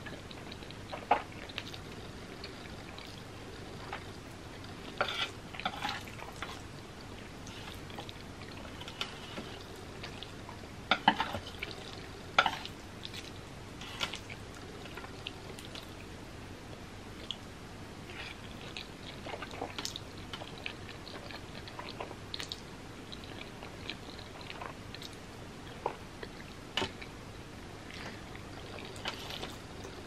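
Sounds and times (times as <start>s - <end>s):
faint steady hum: 0.0s - 30.0s
person chewing noodles: 18.1s - 27.2s, 27.8s - 30.0s.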